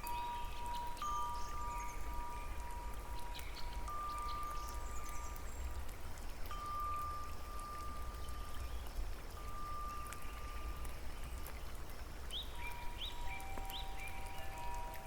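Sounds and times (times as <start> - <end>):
chime-like tones: 0.0 - 2.9, 12.8 - 15.0
small drips: 0.0 - 15.0.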